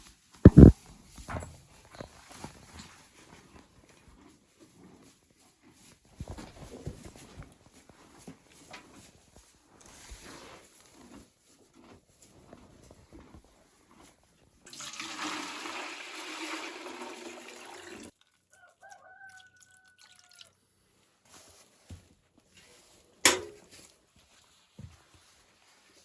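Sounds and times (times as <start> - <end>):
pouring water: 14.7 - 18.4, 19.3 - 20.6.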